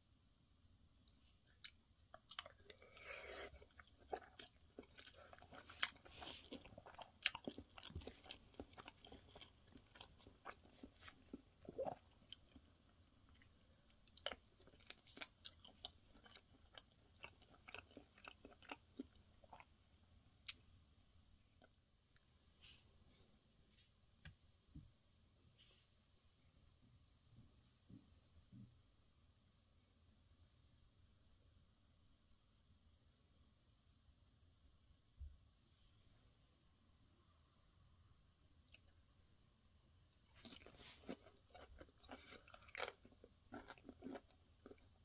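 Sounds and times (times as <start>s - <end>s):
close-up chewing: 1.1s - 19.8s, 40.1s - 45.0s.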